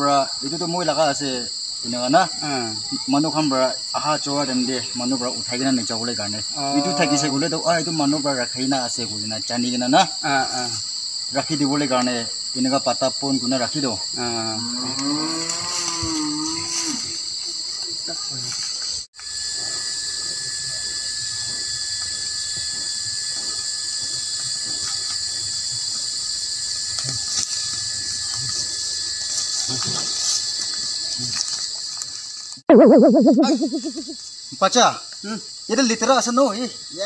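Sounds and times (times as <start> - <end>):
insects chorus: 0.0 - 37.0
wavering voice-like call: 32.7 - 34.2.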